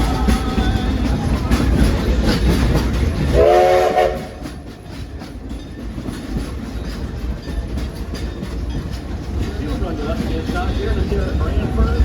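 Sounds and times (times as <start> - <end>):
steam train rumble and clatter: 0.0 - 12.0
train whistle blast: 3.3 - 4.6.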